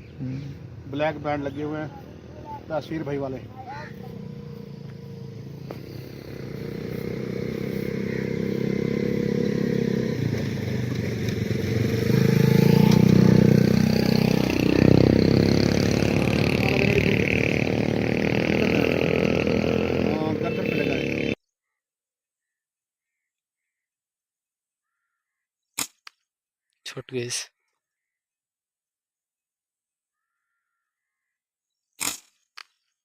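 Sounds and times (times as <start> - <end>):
vehicle engine running: 0.0 - 21.4.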